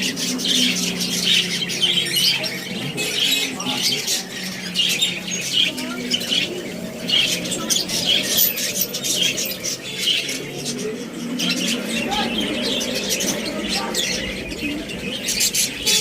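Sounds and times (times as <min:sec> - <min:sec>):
caged birds squawking: 0:00.0 - 0:16.0.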